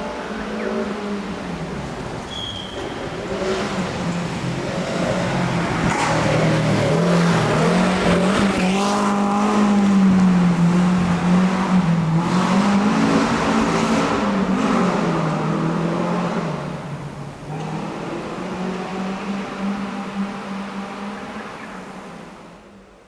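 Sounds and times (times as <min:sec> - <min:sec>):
rally car engine revving: 0:00.0 - 0:22.6.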